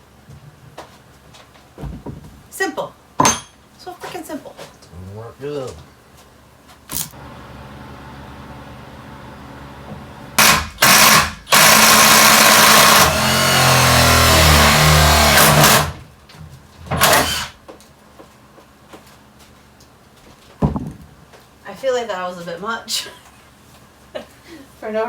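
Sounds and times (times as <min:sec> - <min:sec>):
power drill running: 0:10.3 - 0:16.0, 0:17.0 - 0:17.6.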